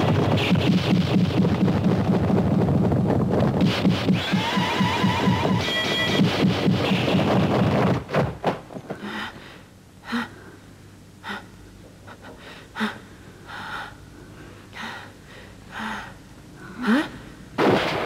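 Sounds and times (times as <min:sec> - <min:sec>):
person gasping: 0:08.9 - 0:17.4.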